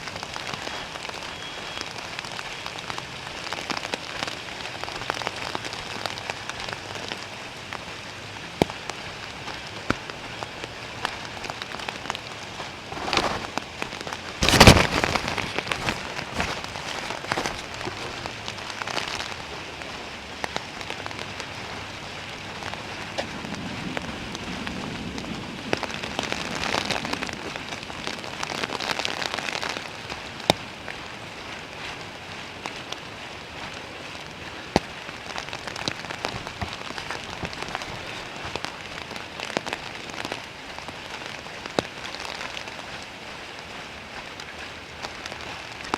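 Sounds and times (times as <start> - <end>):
raindrops clicking: 0.0 - 45.9
steady rain: 0.0 - 45.9
loud crack: 14.4 - 18.1.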